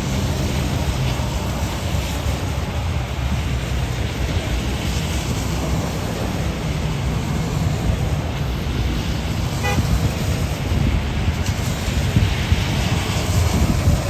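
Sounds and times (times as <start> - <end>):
vehicles passing on wet road: 0.0 - 14.0
horn toot: 9.6 - 10.0.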